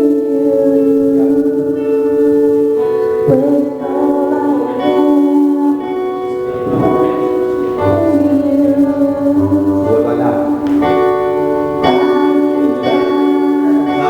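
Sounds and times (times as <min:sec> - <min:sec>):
worship music on keyboard: 0:00.0 - 0:14.0
person singing faintly: 0:03.0 - 0:11.0.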